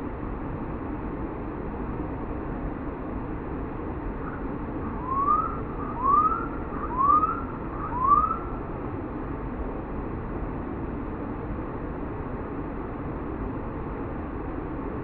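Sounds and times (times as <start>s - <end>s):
steady rushing background noise: 0.0s - 15.0s
bird whistling upward note: 4.9s - 8.5s.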